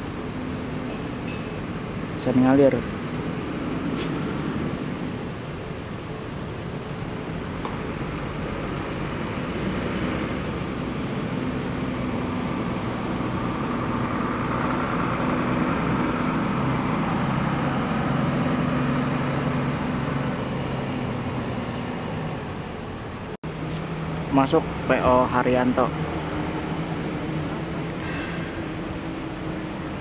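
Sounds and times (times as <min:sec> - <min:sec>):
diesel bus engine running: 0:00.0 - 0:30.0
road traffic: 0:00.0 - 0:30.0.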